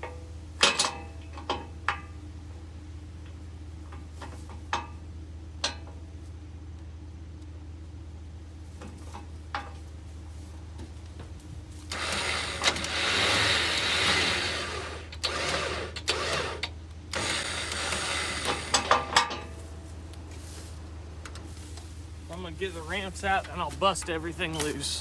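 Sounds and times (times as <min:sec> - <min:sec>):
steady low hum: 0:00.0 - 0:25.0
winch motor running: 0:11.2 - 0:25.0.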